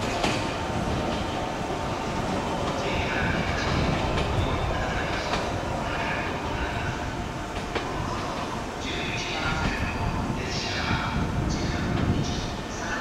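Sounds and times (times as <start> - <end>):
rail car wheels clicking over joints: 0.0 - 5.6
rail car rumble: 0.0 - 13.0.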